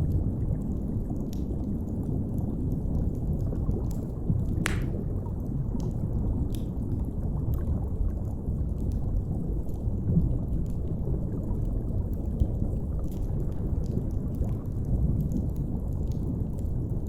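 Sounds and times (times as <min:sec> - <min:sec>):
wood fire crackling: 0:04.6 - 0:05.2.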